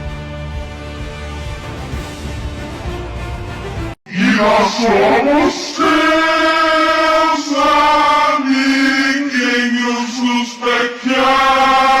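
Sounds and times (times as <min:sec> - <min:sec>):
chant-like singing: 0:04.1 - 0:12.0.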